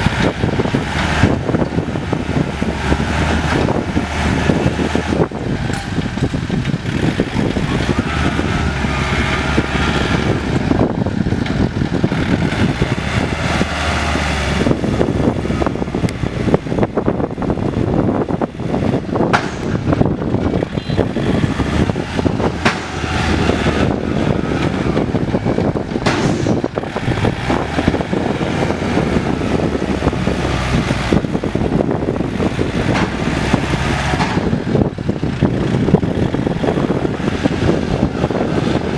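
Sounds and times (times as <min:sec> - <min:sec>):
diesel tractor engines running: 0:00.0 - 0:38.9
knocks and rattles: 0:00.0 - 0:38.9.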